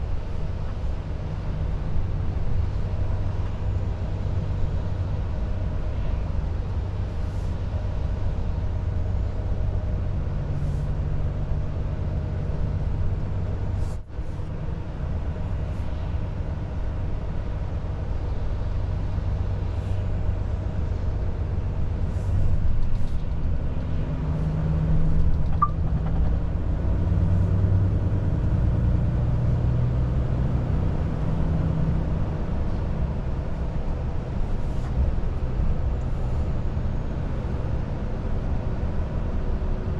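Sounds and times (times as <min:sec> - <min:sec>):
road noise: 0:00.0 - 0:39.9
truck diesel engine drone: 0:00.0 - 0:39.9.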